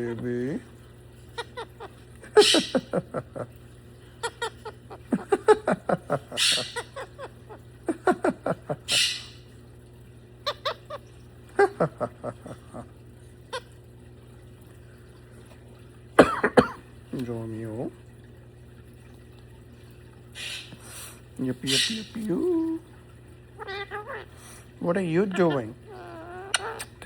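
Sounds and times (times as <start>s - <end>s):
bird chattering with clicks and calls: 1.3s - 2.9s, 10.4s - 11.1s, 21.6s - 22.8s, 25.2s - 27.0s
bird breathy hisses: 20.3s - 21.2s.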